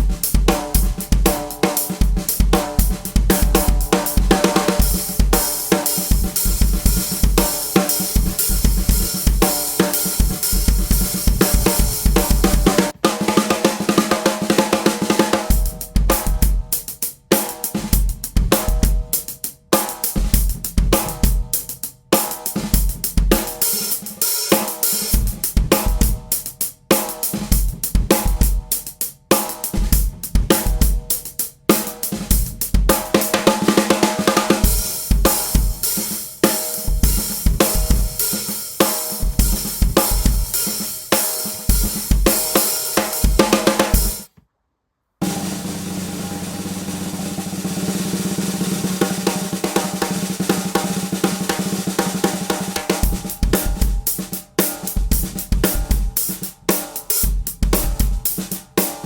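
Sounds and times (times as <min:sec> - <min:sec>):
bass drum: 0:00.0 - 0:13.0, 0:34.4 - 0:36.1, 0:36.8 - 0:38.2, 0:39.2 - 0:40.7, 0:53.0 - 0:54.3, 0:55.0 - 0:56.2
snare drum: 0:00.0 - 0:44.4, 0:45.2 - 0:59.0.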